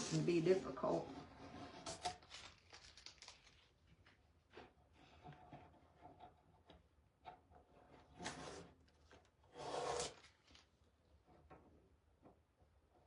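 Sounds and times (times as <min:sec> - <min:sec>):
tape peeling and rustling: 0:01.6 - 0:04.2, 0:08.2 - 0:10.9.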